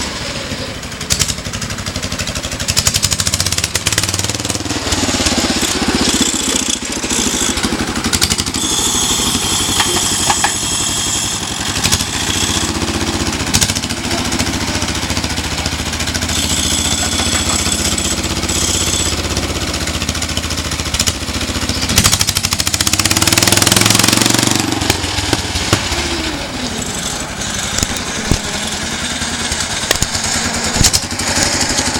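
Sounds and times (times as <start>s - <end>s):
engine idling and revving: 0.0s - 31.9s.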